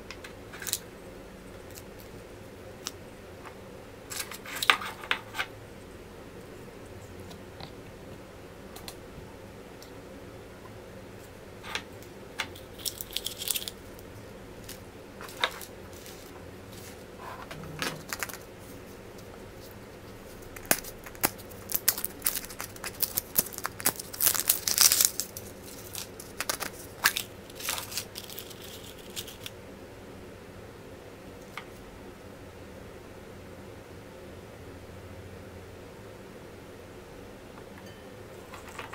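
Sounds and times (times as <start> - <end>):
wrappers tearing and crinkling: 12.6 - 13.8, 20.6 - 29.5.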